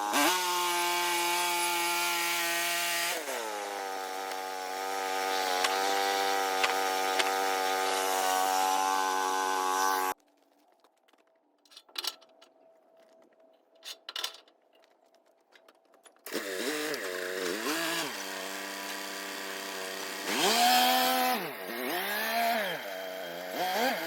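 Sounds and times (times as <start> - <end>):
saw blade cutting wood: 0.0 - 10.2, 16.3 - 24.0
sawmill engine running: 0.1 - 10.2, 16.3 - 24.0.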